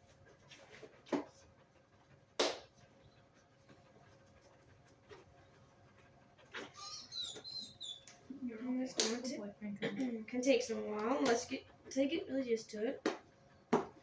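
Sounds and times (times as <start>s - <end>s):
dog panting: 0.0s - 9.4s
high-pitched squeak: 6.6s - 8.0s.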